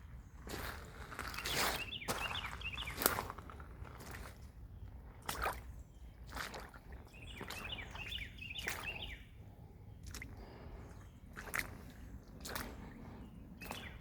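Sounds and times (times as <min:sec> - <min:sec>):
footsteps on rough ground: 0:00.0 - 0:05.7, 0:10.1 - 0:14.0
bird chirping: 0:01.3 - 0:03.2, 0:07.1 - 0:09.3, 0:13.2 - 0:14.0.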